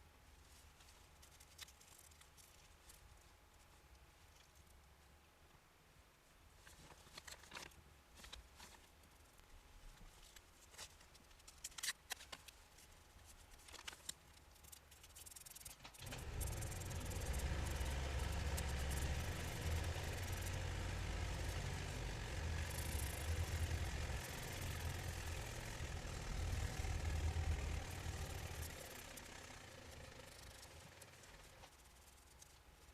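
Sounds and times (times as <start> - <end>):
engine idling with rattle: 15.5 - 32.9.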